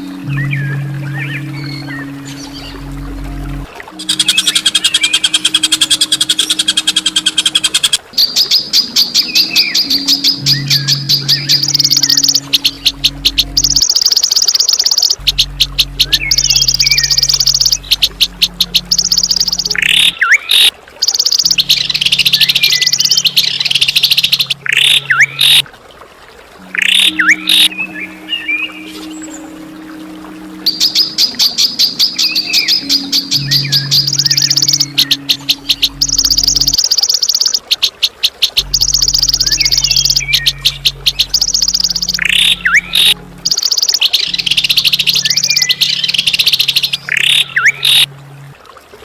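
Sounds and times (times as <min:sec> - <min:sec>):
steady low hum: 0:00.0 - 0:08.0, 0:09.4 - 0:13.9, 0:15.2 - 0:20.0, 0:26.7 - 0:36.8, 0:38.6 - 0:48.6
songbird rattling high notes: 0:09.6 - 0:25.6.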